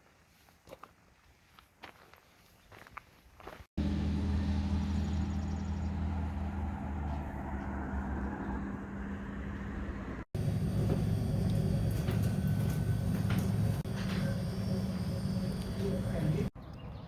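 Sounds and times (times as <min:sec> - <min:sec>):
vehicle engine humming: 0:03.8 - 0:16.6
road noise: 0:03.8 - 0:16.7.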